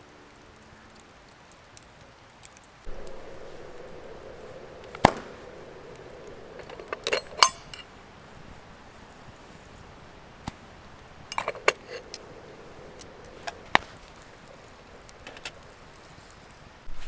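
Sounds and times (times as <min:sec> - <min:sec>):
camp cookware clinking and knocking: 0:02.9 - 0:15.9.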